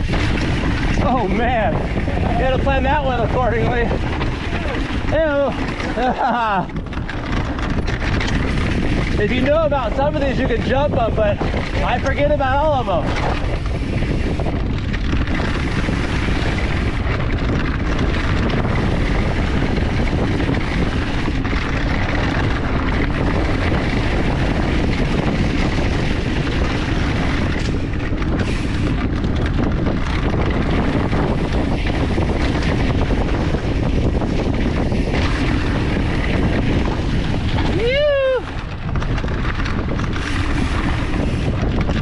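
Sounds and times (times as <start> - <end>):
bike tyres rattling over dirt: 0.0 - 42.0
wind on microphone: 0.0 - 42.0.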